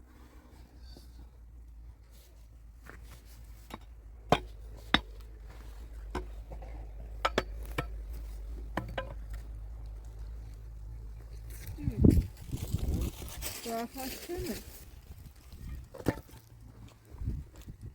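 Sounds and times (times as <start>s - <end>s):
hard objects knocking and clinking: 8.7s - 9.3s.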